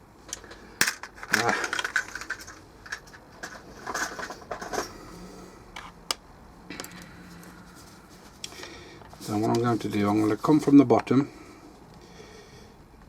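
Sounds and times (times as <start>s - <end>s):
hand tools clicking and scraping plastic: 0.3s - 5.1s.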